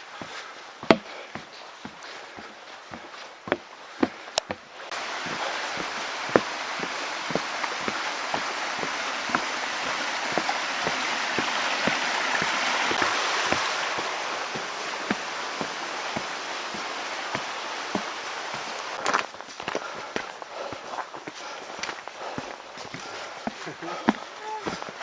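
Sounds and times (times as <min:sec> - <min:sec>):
footsteps: 0:00.0 - 0:25.0
mountain stream rushing: 0:00.0 - 0:25.0.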